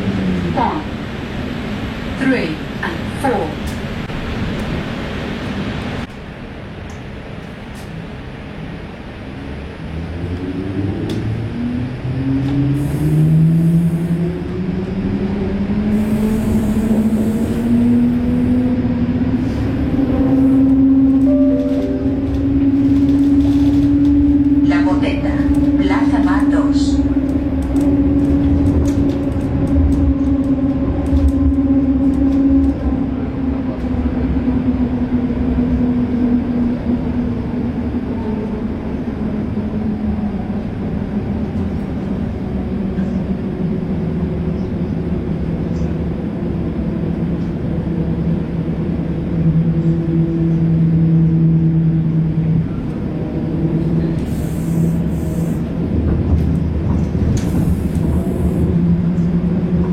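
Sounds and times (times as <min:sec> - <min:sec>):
tram rumbling along track: 0:00.0 - 0:59.9
humming tone: 0:19.8 - 0:24.6.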